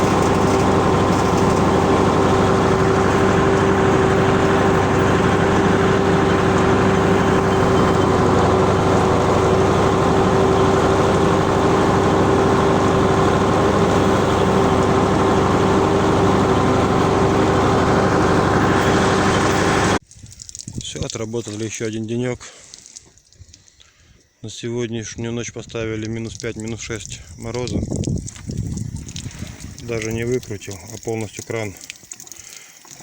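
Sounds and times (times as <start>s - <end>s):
tractor diesel engine running: 0.0s - 20.0s, 26.3s - 33.0s
constant whine: 0.0s - 21.8s.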